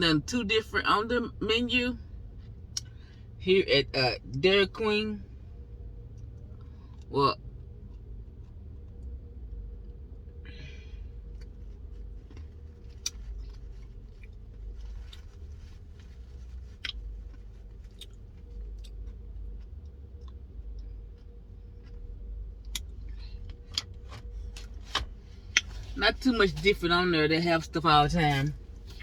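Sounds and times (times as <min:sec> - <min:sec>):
faint steady hum: 0:00.0 - 0:29.0
person chewing: 0:11.2 - 0:24.6.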